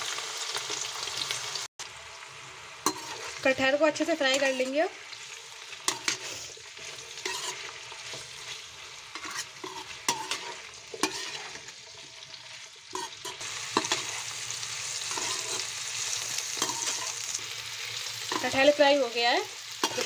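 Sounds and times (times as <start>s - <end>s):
food sizzling in hot oil: 0.0s - 20.0s
metal spoon scraping pan: 2.8s - 14.4s, 15.0s - 17.4s, 18.2s - 18.8s, 19.8s - 20.0s.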